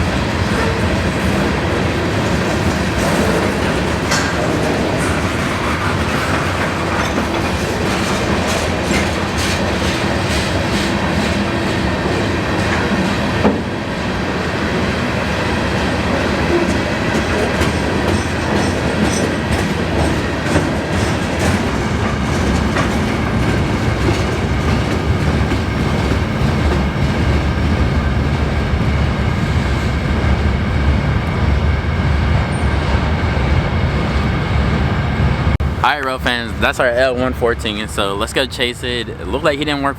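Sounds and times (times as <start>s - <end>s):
train wheels clickety-clack: 0.0s - 34.3s.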